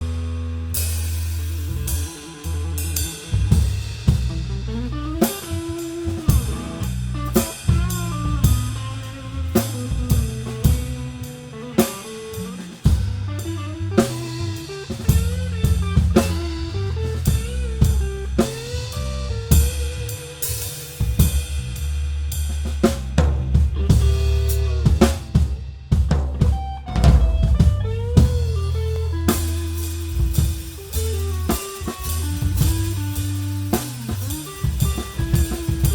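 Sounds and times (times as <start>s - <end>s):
electric bass: 0.0s - 35.9s
electric guitars: 4.0s - 20.9s, 23.8s - 25.4s, 26.5s - 35.9s
snare drum: 5.2s - 8.9s, 22.9s - 28.5s, 29.3s - 35.9s.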